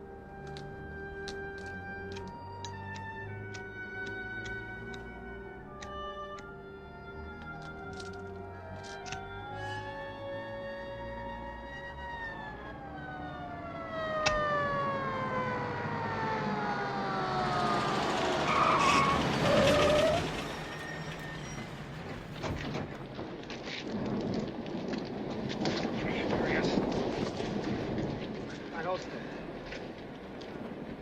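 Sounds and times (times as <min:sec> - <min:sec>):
police siren winding down: 0:02.3 - 0:22.1
car noise: 0:14.2 - 0:23.4
short squeal: 0:18.5 - 0:22.4.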